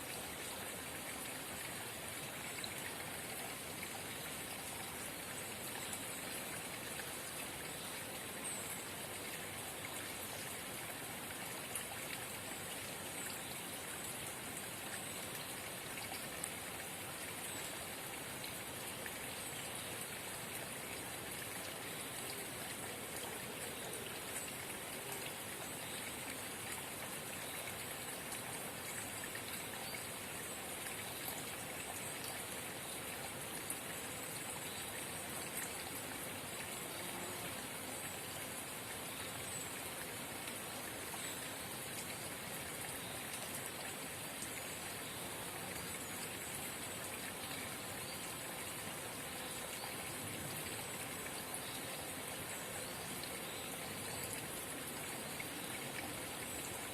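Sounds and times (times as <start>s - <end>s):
faint drip-like ticks: 0.0s - 56.9s.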